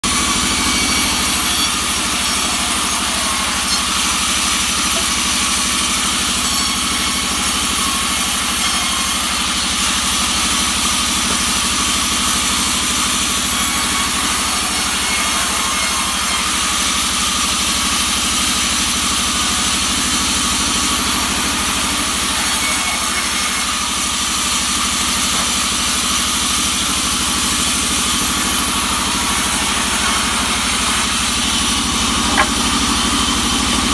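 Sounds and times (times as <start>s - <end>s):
engine-powered saw cutting wood: 0.0s - 33.9s.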